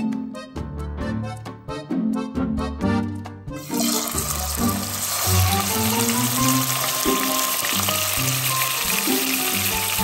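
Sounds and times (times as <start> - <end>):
background music: 0.0 - 10.0
pork chop sizzling in frying pan: 3.6 - 10.0.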